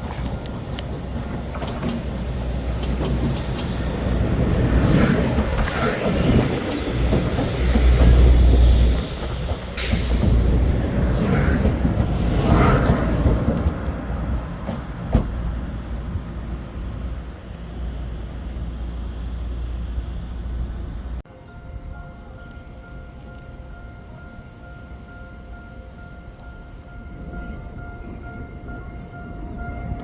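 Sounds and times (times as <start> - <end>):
train wheels rumbling on rail: 0.0 - 21.3.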